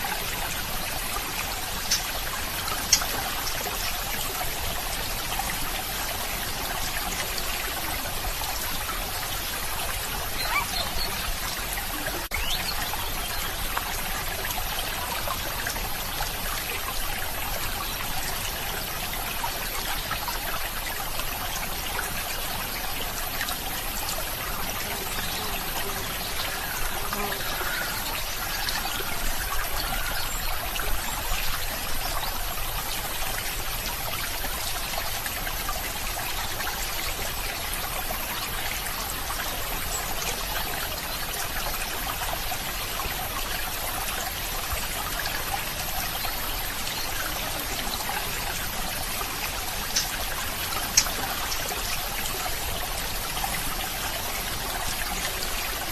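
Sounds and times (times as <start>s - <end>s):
stream trickling and splashing: 0.0s - 55.9s.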